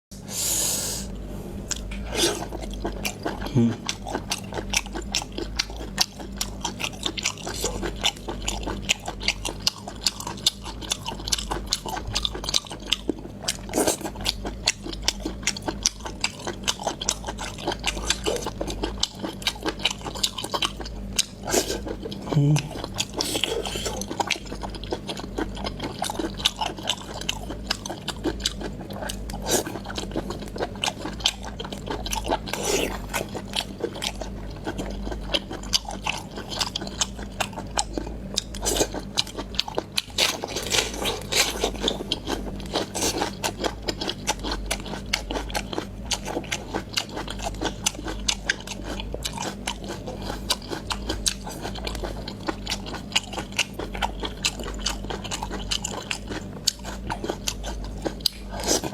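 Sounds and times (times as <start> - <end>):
low hum: 0.2 - 46.7
wet crunchy chewing: 1.6 - 58.9.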